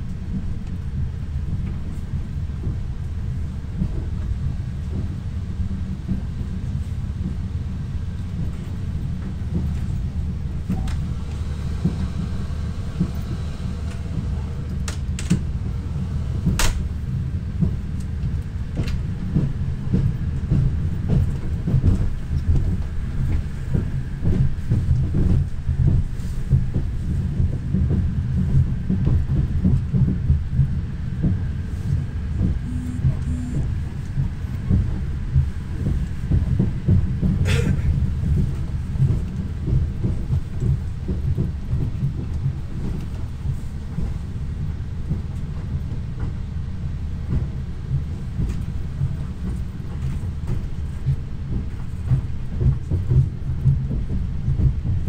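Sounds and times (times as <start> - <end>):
rail joint clicks and knocks: 0.0 - 55.0
train wheels rumbling on track: 0.0 - 55.0.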